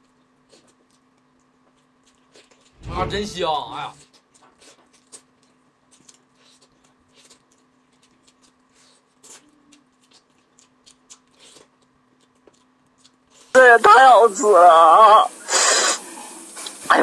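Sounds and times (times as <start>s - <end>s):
person chewing: 0.0s - 2.8s, 4.0s - 13.5s.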